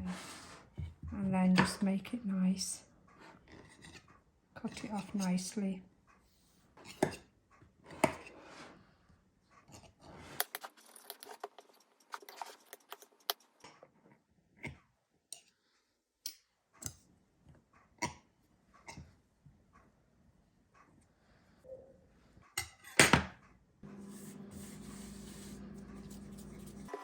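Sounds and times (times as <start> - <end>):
knife scraping a pie dish: 3.3 - 4.1, 7.9 - 8.8, 9.7 - 13.4, 23.9 - 27.0.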